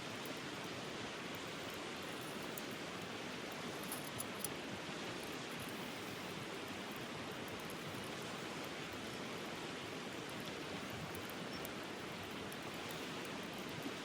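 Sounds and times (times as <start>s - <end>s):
stream water flowing: 0.0s - 14.0s.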